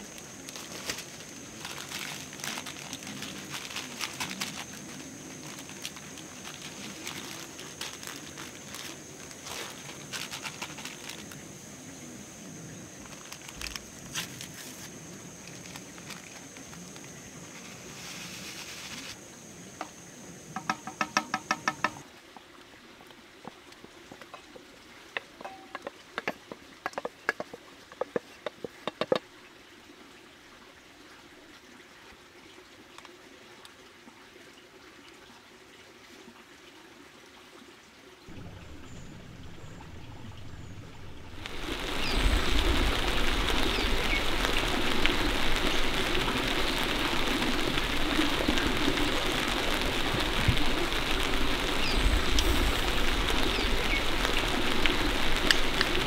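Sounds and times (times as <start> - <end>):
heavy rain hissing: 0.0 - 22.0, 38.3 - 56.0
sparse rain taps: 20.6 - 22.5, 25.2 - 29.2, 38.3 - 56.0.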